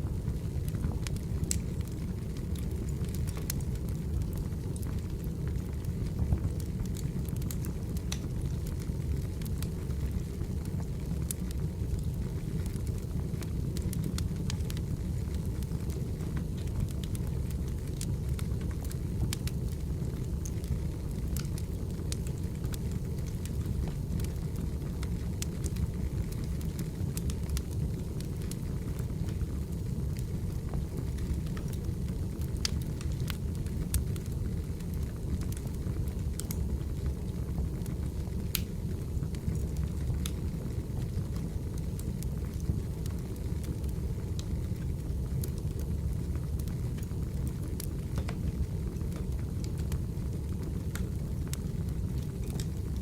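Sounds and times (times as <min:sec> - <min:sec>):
wood fire crackling: 0:00.0 - 0:53.0
firewood popping and snapping: 0:06.3 - 0:08.4, 0:38.5 - 0:40.4.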